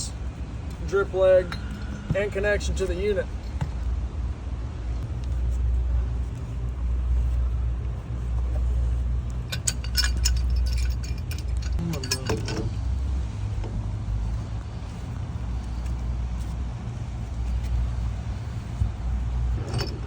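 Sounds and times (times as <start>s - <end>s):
low mechanical rumble: 0.0s - 20.0s
metal fittings clinking: 9.4s - 12.8s, 19.6s - 20.0s.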